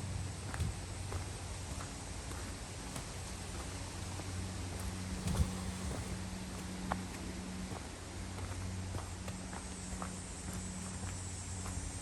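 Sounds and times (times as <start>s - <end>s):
footsteps on woodland trail: 0.0s - 12.0s
steady low hum: 0.0s - 12.0s.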